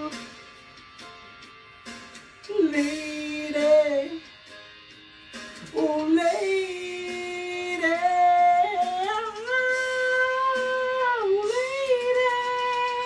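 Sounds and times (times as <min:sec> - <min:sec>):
man singing held notes: 0:02.5 - 0:04.3, 0:05.6 - 0:13.0.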